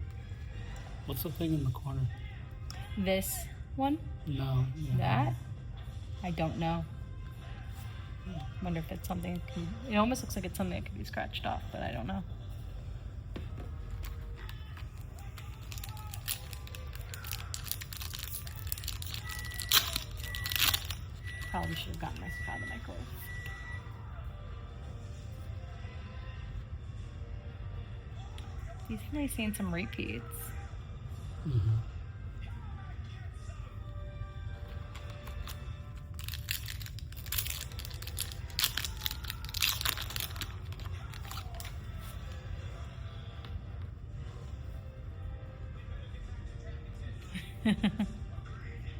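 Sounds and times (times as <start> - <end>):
foil wrapper crinkling and tearing: 14.1 - 21.2, 34.9 - 42.0.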